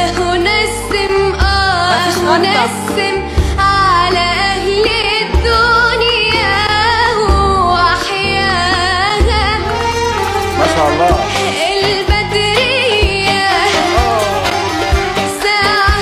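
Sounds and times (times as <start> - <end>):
backing music: 0.0 - 16.0
deep bass beat: 0.0 - 16.0
person singing: 0.5 - 4.2, 9.1 - 16.0.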